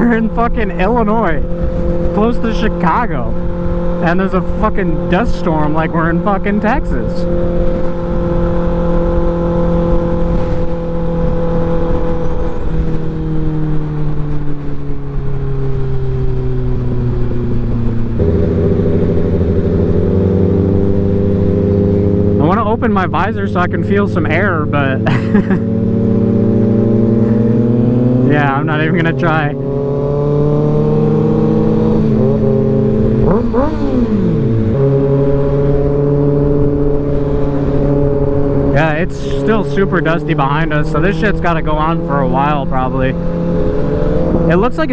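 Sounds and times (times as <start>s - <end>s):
wind noise on microphone: 0.0s - 5.8s, 6.7s - 22.3s, 29.4s - 42.0s, 42.9s - 44.9s
motorcycle engine running: 0.0s - 44.9s.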